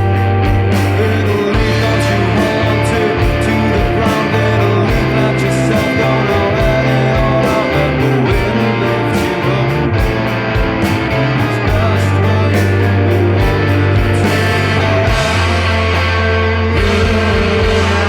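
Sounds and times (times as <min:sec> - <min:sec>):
bass line: 0:00.0 - 0:18.0
electric guitar: 0:00.0 - 0:18.0
rock band playing live: 0:00.0 - 0:18.0
steady drum beat: 0:00.0 - 0:18.0.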